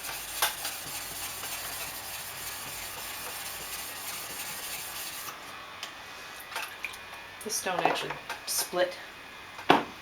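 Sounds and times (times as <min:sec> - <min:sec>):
stone scrubbing on wet whetstone: 0:00.0 - 0:05.4.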